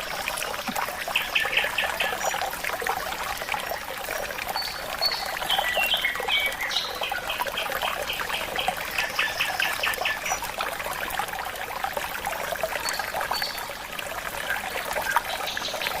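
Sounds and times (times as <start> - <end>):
water trickling: 0.0 - 16.0
forest birds singing: 4.6 - 10.4, 14.4 - 16.0.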